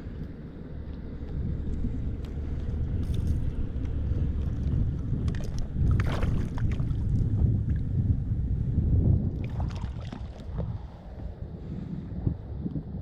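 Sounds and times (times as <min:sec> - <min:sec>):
wind rumbling on microphone: 0:00.0 - 0:13.0
water splashing: 0:04.4 - 0:07.8, 0:09.4 - 0:10.6.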